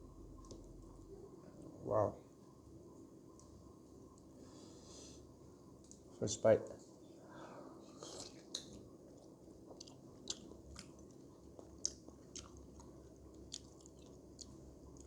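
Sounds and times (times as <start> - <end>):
person chewing food: 7.9 - 15.0.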